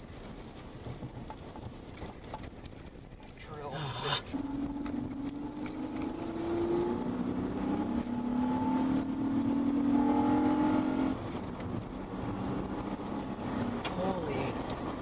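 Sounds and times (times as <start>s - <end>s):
car engine accelerating: 3.6s - 15.0s.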